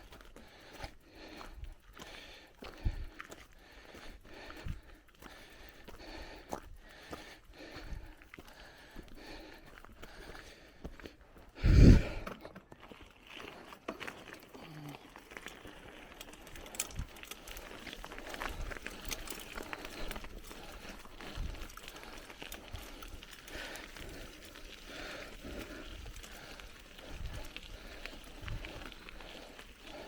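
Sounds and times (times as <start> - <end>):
bicycle tyres on gravel: 0.0 - 30.0
bike rattling over bumps: 15.3 - 30.0.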